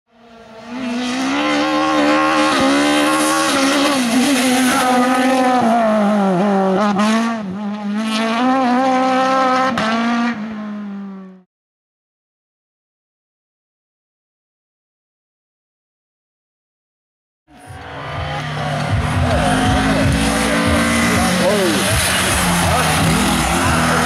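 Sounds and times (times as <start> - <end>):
racing car engine revving: 0.1 - 11.4, 17.5 - 24.0.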